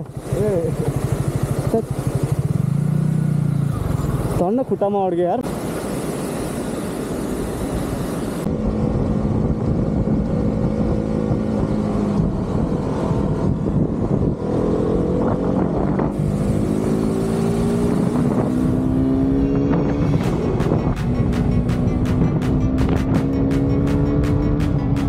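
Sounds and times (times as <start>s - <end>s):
motorcycle engine running: 0.0s - 5.2s, 8.5s - 25.0s
wind rush on microphone: 7.1s - 25.0s.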